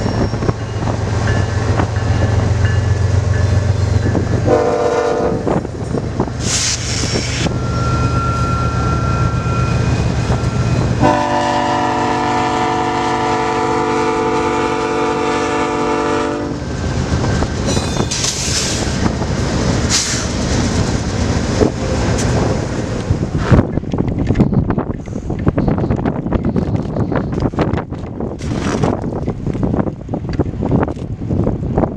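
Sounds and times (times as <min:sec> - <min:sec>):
freight locomotives rumbling: 0:00.0 - 0:31.9
locomotive air horn: 0:04.4 - 0:05.6, 0:10.8 - 0:16.6.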